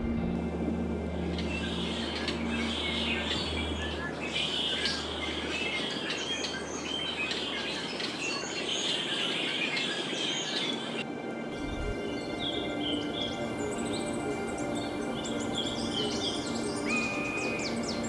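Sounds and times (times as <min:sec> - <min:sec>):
outdoor ambient hiss: 0:00.0 - 0:18.0
songbirds chirping: 0:00.0 - 0:18.0.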